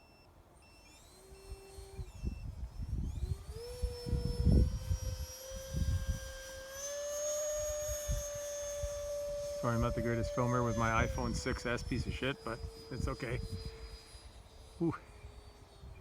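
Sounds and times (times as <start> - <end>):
battery alarm beeping: 0.0 - 3.5
electric motor whining: 0.0 - 16.0.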